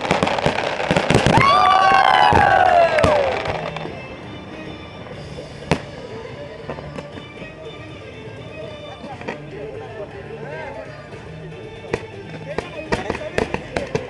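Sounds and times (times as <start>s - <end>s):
fireworks bangs and crackling: 0.0s - 7.5s, 11.8s - 14.0s.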